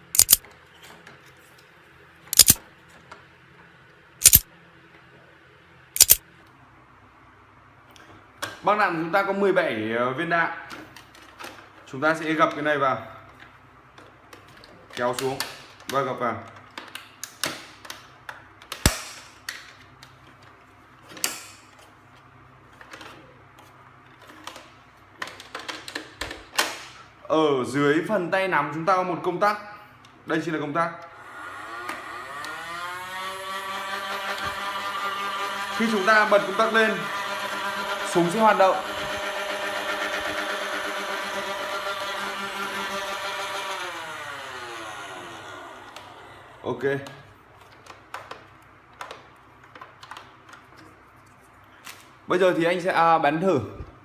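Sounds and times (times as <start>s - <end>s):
darts clicking into plastic magazine: 0.0s - 0.4s, 2.4s - 2.6s, 4.2s - 4.4s, 6.0s - 6.2s.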